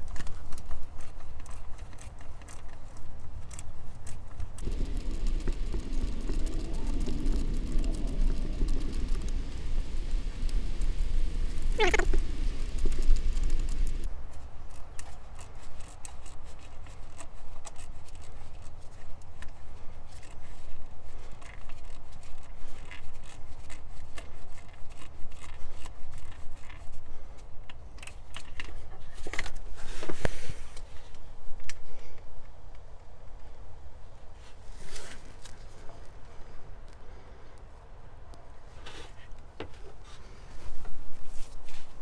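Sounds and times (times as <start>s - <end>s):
small metal scrapes: 4.6s - 14.1s.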